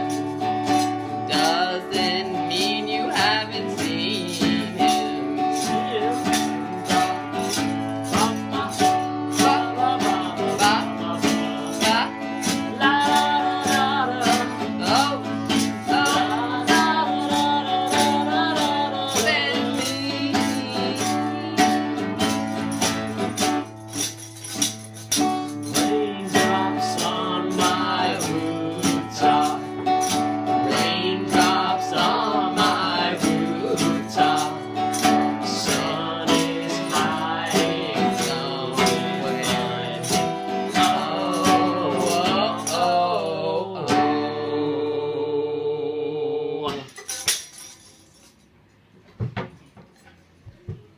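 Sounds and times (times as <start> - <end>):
person singing: 0.0 - 23.6, 25.2 - 47.0
acoustic guitar strumming: 0.0 - 46.9.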